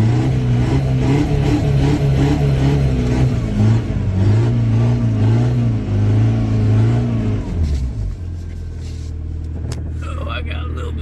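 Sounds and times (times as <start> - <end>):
car engine revving under load: 0.0 - 8.5.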